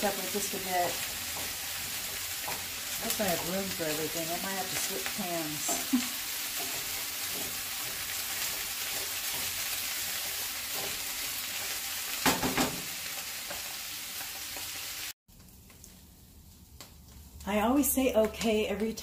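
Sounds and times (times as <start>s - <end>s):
vegetables sizzling in a pan: 0.0s - 18.9s.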